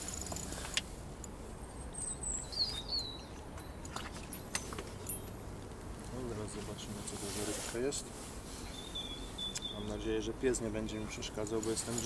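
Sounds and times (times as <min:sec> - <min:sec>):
low background noise: 0:00.0 - 0:12.0
bird chirping: 0:01.8 - 0:05.2, 0:08.6 - 0:10.1.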